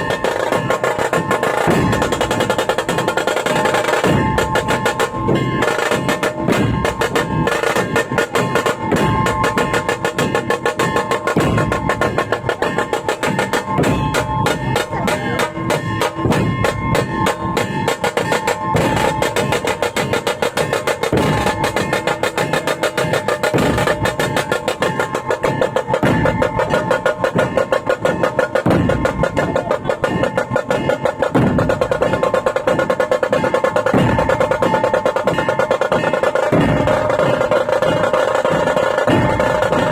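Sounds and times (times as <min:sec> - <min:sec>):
fast drum strokes and rolls: 0:00.0 - 0:39.9
held melodic tones: 0:00.0 - 0:39.9.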